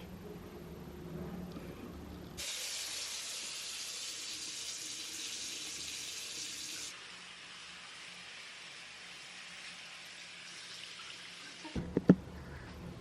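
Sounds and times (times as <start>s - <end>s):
water running from tap: 2.4s - 11.8s.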